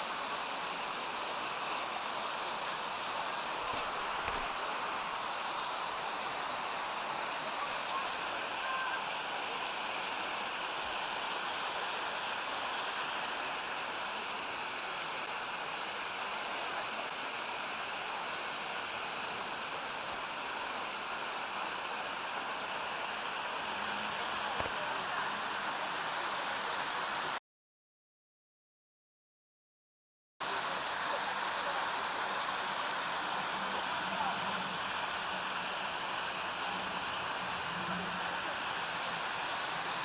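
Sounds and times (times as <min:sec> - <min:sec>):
stream cascades rushing: 0:00.0 - 0:27.4, 0:30.4 - 0:40.0.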